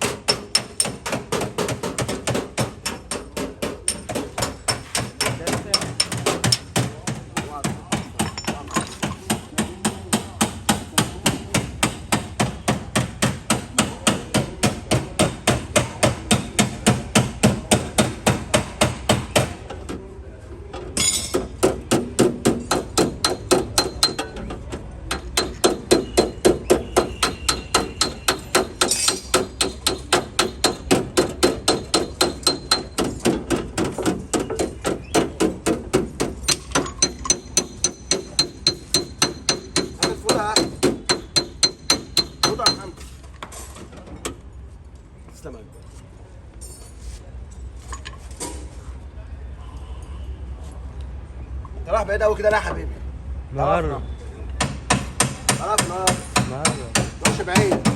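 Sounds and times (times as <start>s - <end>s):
hammer tapping sheet metal: 0.0s - 19.7s, 21.0s - 43.1s, 54.6s - 57.9s.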